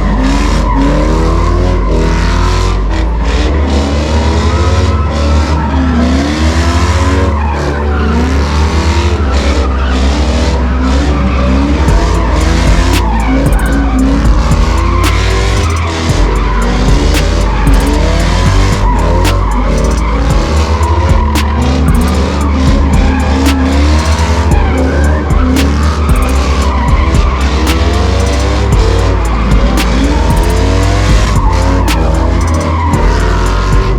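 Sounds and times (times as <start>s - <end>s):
car engines revving: 0.0s - 33.9s
tyres squealing on pavement: 0.0s - 33.9s
heavy bass thumps: 11.4s - 33.9s.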